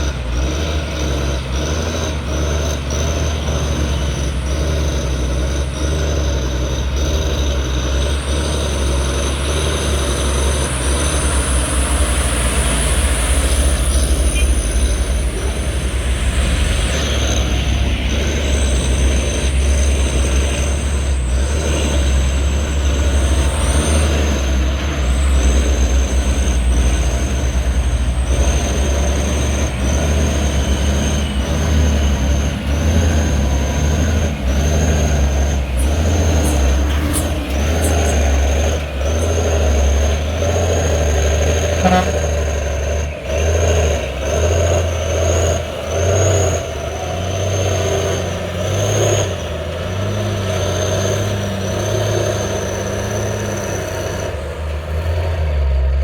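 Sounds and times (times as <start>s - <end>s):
diesel truck engine under load: 0.0s - 56.0s.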